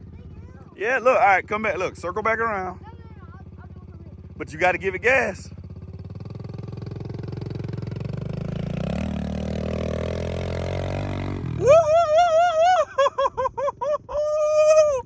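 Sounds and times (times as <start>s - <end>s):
dirt bike engine under throttle: 0.0s - 15.0s
person whooping: 11.5s - 15.0s.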